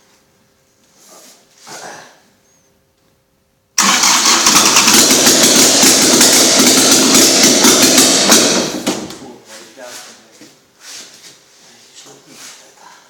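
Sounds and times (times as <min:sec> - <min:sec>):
engine running loudly: 0:03.8 - 0:09.1.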